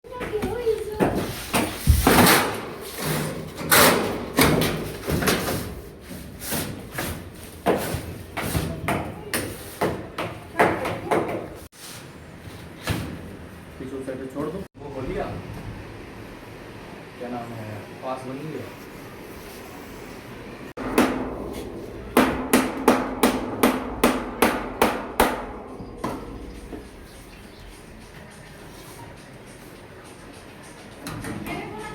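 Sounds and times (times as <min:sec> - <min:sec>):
knocks bumps and scrapes: 0:00.2 - 0:10.1
hammer blows ringing: 0:20.8 - 0:27.5.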